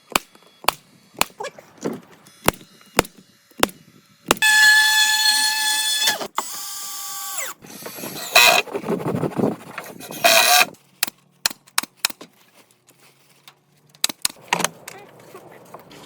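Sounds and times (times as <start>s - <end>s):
small motor winding down: 2.3s - 8.6s.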